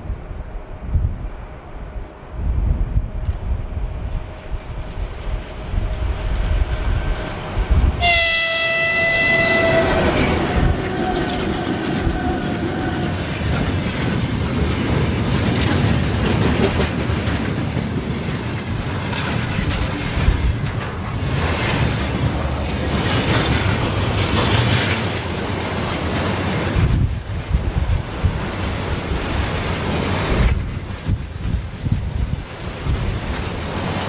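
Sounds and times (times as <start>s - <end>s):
passing train rumble and clatter: 0.0s - 34.0s
locomotive horn blast: 8.0s - 13.4s.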